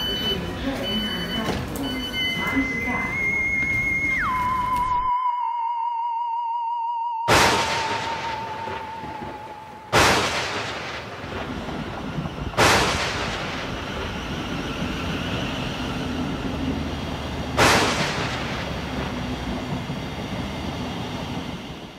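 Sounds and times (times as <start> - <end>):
train low rumble: 0.0 - 4.8, 7.7 - 21.9
loud booms: 7.3 - 14.2, 17.6 - 19.1.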